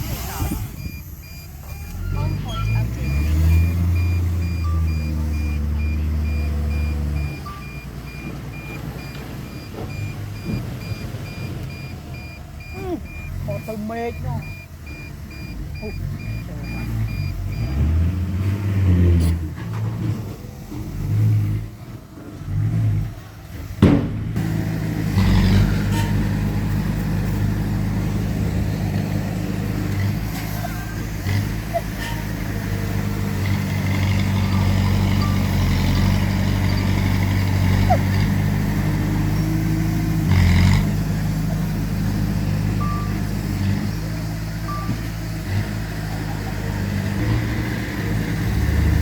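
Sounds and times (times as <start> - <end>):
heavy diesel engine running: 0.0 - 49.0
reversing alarm beeping: 0.4 - 17.9, 34.3 - 37.1, 42.8 - 43.2, 44.6 - 45.1.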